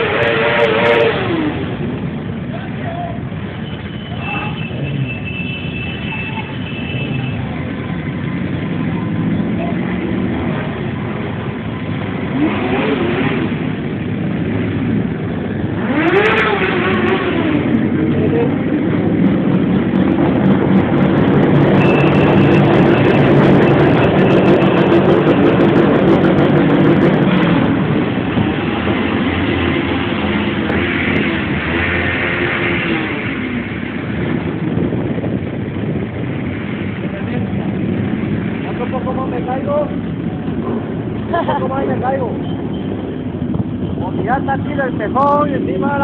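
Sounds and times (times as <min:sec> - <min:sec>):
motorcycle engine revving: 0:00.0 - 0:02.4, 0:08.4 - 0:46.0.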